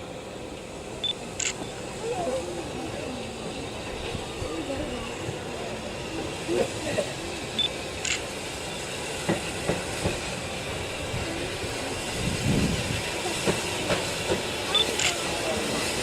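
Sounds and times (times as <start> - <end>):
train rumbling: 0.0 - 16.0
train wheels clicking: 1.0 - 1.8, 5.2 - 16.0.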